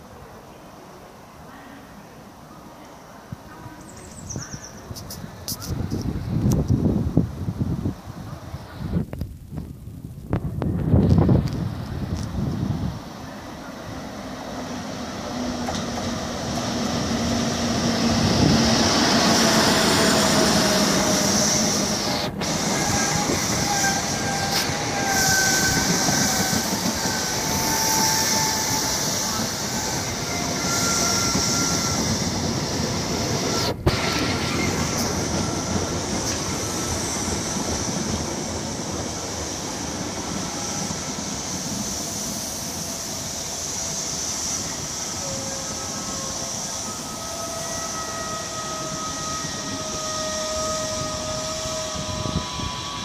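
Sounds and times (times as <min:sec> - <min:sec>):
train rumble and rail noise: 0:00.0 - 0:53.0
wheels squealing: 0:21.0 - 0:37.4.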